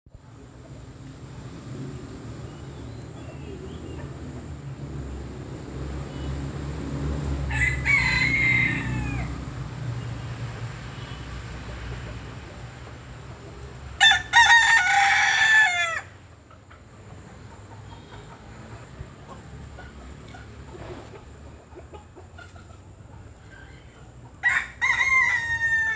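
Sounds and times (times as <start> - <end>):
rooster crowing: 7.5 - 9.5, 14.0 - 16.2, 24.4 - 25.9.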